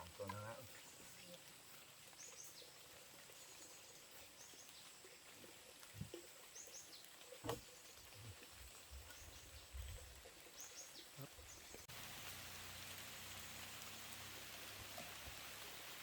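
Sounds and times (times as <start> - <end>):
bird chirping: 6.4 - 11.9.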